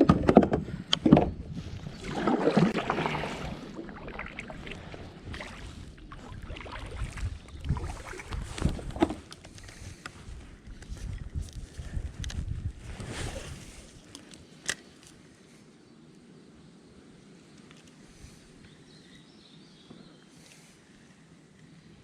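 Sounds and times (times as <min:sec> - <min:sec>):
wind on microphone: 0:00.0 - 0:14.1
rush of water: 0:01.8 - 0:09.2.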